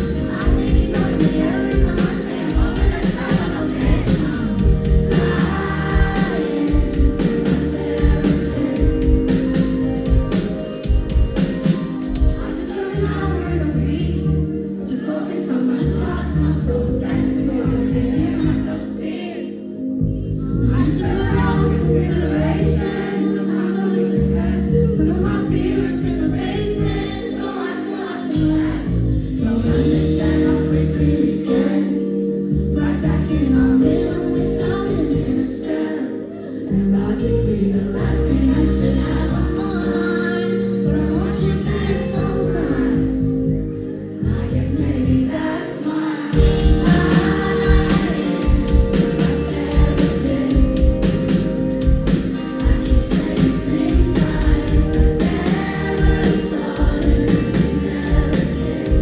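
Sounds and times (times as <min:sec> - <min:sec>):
full band playing pop song: 0:00.0 - 0:13.3, 0:45.0 - 0:59.0
woman singing lead vocal: 0:00.0 - 0:59.0.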